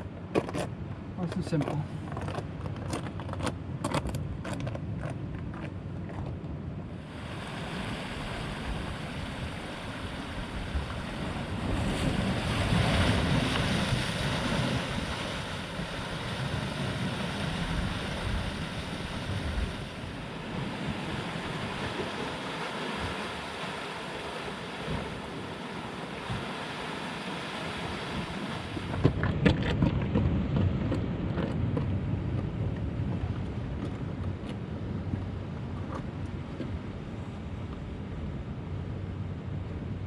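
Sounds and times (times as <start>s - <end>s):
wind buffeting microphone: 0.0s - 40.0s
sea surf: 6.9s - 33.9s.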